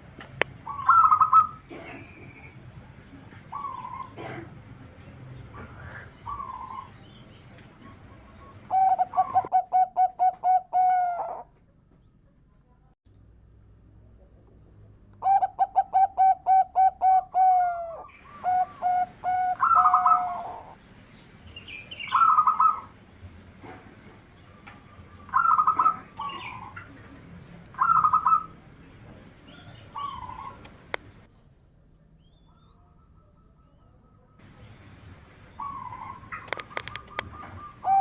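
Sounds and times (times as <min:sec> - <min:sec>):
dove cooing: 0:00.6 - 0:02.5, 0:03.3 - 0:04.6, 0:05.6 - 0:07.0, 0:07.8 - 0:11.5, 0:15.2 - 0:20.8, 0:22.1 - 0:22.9, 0:24.9 - 0:28.6, 0:29.4 - 0:31.0, 0:35.6 - 0:38.0.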